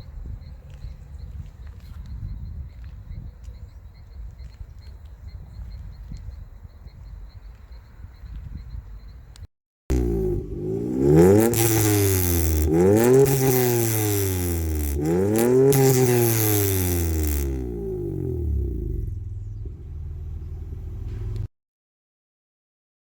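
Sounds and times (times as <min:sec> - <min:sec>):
car engine revving: 0:09.9 - 0:21.5.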